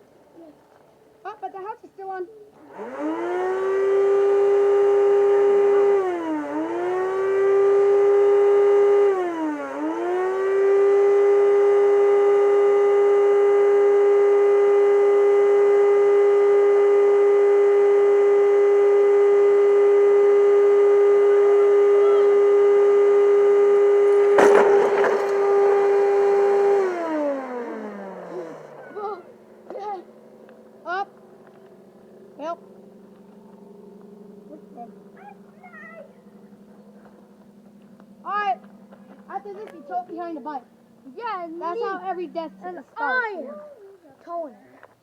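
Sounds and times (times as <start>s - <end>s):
vacuum cleaner motor whining: 2.6s - 30.6s
loud clattering hit: 24.1s - 26.5s.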